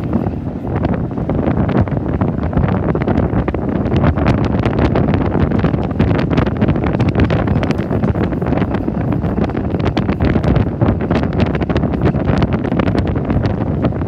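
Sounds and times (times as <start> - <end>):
train rumbling along the track: 0.0 - 14.0
wind buffeting a microphone: 0.0 - 14.0.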